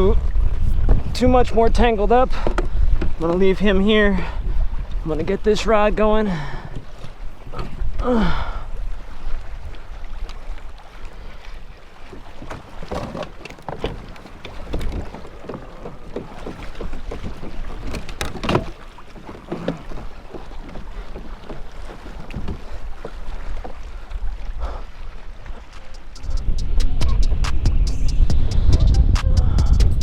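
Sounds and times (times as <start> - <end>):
wind buffeting microphone: 0.0 - 6.0, 25.5 - 30.0
water against kayak: 0.0 - 30.0.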